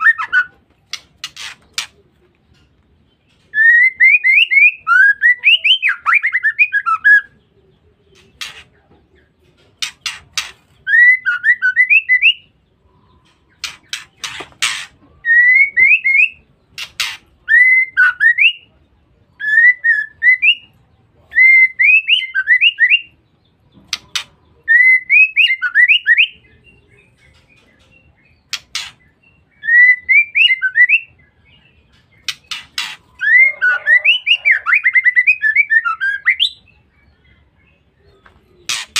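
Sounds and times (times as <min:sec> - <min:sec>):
bird whistled calls: 0:32.3 - 0:36.7.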